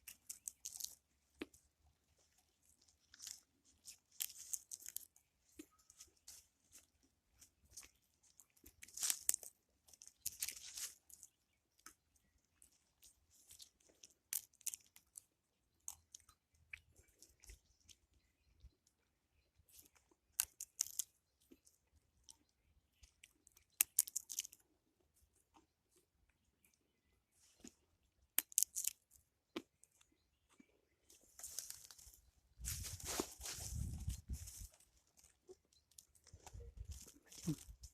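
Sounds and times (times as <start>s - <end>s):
crunching footsteps: 30.5s - 37.9s.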